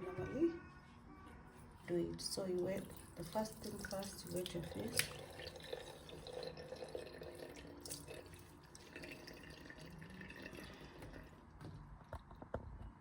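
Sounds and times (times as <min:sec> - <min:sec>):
tap water running into sink: 0:02.6 - 0:11.3.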